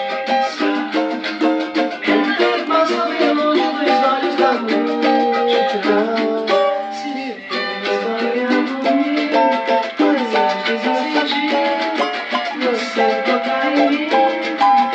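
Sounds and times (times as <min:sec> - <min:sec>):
strummed cavaquinho music: 0:00.0 - 0:14.9.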